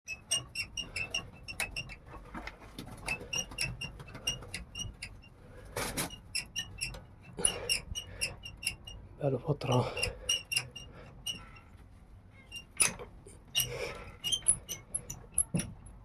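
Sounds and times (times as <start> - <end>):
small animals squeaking: 9.6 - 11.7.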